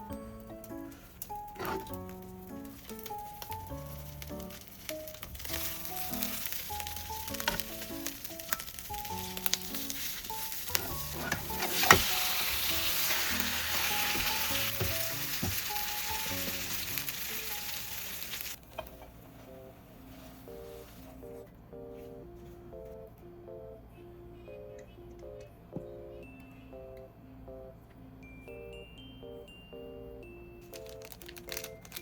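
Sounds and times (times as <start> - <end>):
food sizzling in a pan: 3.8 - 18.6.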